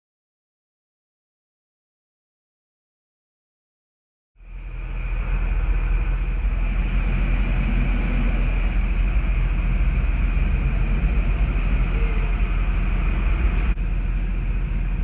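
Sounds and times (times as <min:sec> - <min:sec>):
high whine: 0:04.4 - 0:15.0
truck diesel engine running: 0:04.4 - 0:15.0.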